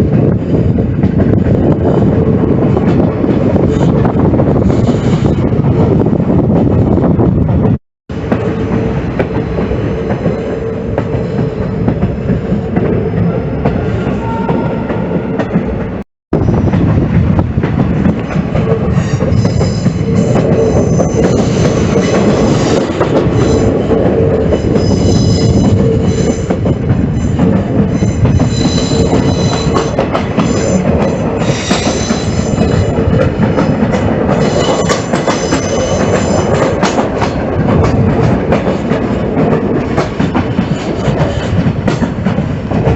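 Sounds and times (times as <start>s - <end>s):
train wheels rumbling on rails: 0.0s - 42.9s
high-pitched wheel squeal: 18.9s - 26.5s, 27.1s - 33.0s, 34.4s - 36.5s.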